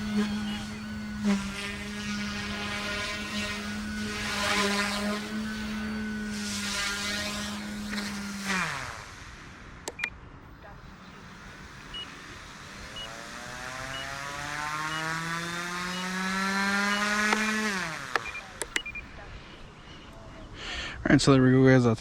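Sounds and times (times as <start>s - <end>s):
rc helicopter motor whine: 0.0s - 20.4s
clicks: 9.8s - 10.2s, 17.1s - 19.2s
short high beeps: 13.0s - 13.2s, 18.2s - 19.2s.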